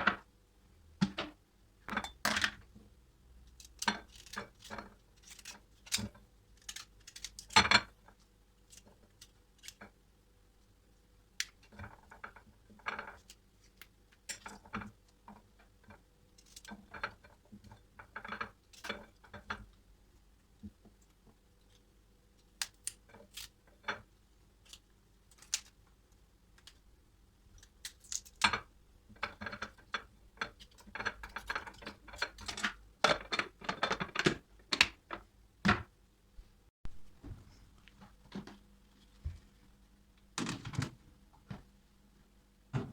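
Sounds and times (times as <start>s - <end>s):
household objects clicking and clattering: 27.7s - 35.9s.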